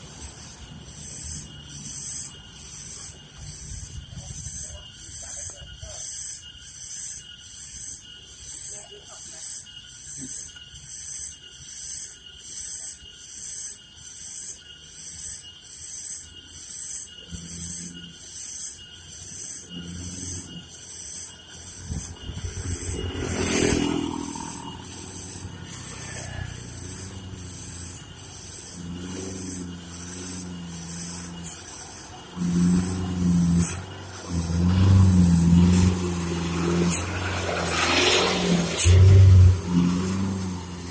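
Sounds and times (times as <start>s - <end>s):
high-pitched pulsing: 0.0s - 40.9s
truck diesel engine labouring: 21.1s - 40.9s.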